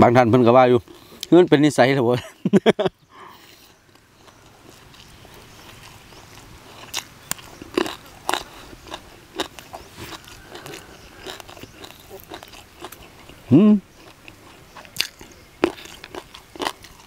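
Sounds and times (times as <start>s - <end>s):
person chewing crunchy food: 3.6s - 17.0s.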